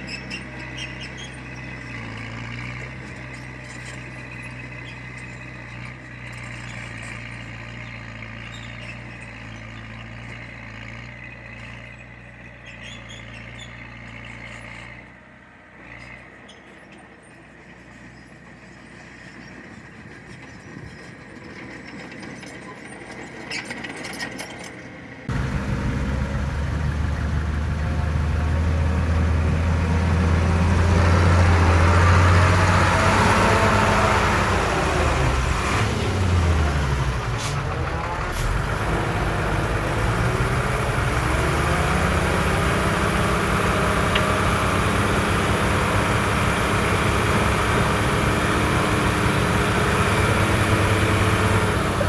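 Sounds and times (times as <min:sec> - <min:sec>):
heavy diesel engine running: 0:25.3 - 0:52.0.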